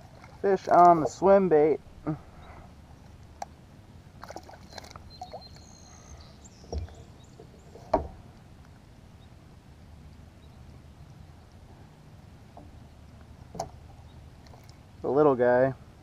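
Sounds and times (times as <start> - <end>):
thumps on kayak hull: 7.8 - 8.2.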